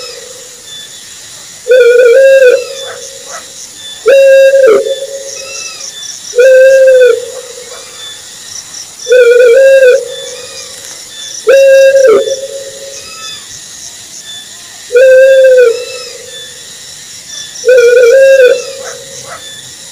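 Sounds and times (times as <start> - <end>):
owl hooting: 1.7 - 8.2, 9.1 - 10.8, 11.4 - 13.4, 14.9 - 16.6, 17.6 - 19.6.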